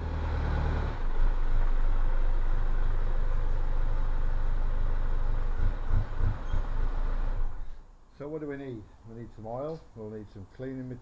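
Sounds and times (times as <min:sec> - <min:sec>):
diesel engine running: 0:00.0 - 0:07.8.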